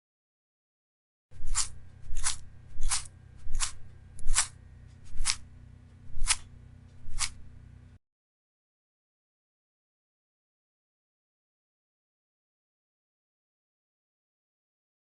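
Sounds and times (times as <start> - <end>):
low steady hum: 1.3 - 8.0
short scraping swishes: 1.4 - 7.6.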